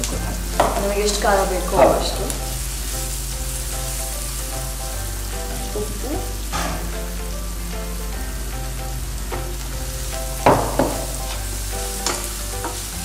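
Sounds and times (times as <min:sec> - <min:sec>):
vegetables sizzling in a pan: 0:00.0 - 0:13.0
utensil knocking against pan: 0:00.6 - 0:01.2
spatula stirring: 0:09.3 - 0:13.0.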